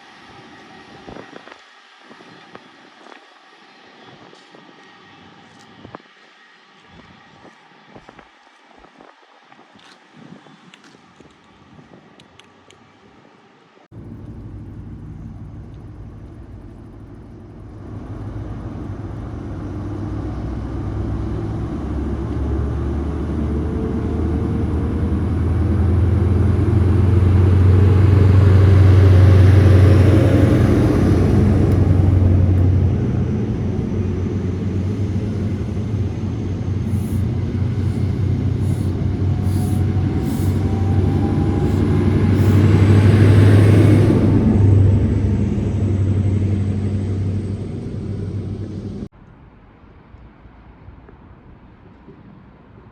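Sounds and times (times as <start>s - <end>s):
diesel train engine drone: 0.0s - 52.9s.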